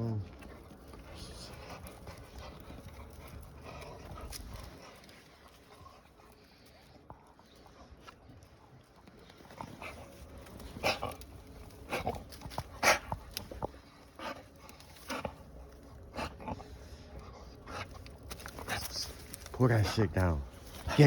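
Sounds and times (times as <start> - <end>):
dog chewing on tree: 0.0 - 21.0.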